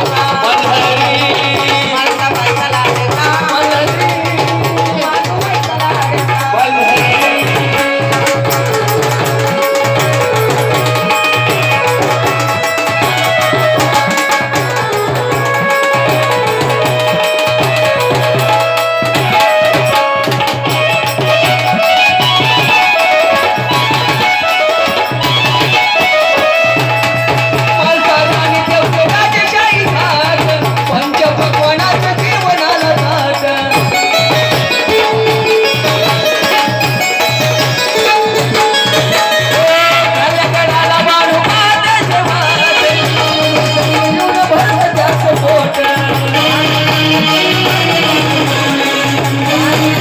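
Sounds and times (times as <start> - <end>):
hand drums keeping a beat: 0.0 - 50.0
melody of held notes: 3.3 - 29.0, 32.5 - 50.0.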